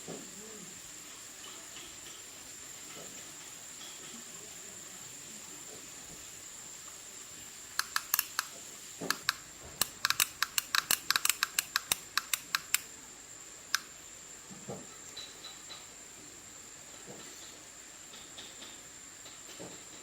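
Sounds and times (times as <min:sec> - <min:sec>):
faint high-pitched whine: 0:00.0 - 0:20.0
small sharp clicks: 0:07.8 - 0:12.9, 0:13.7 - 0:13.9.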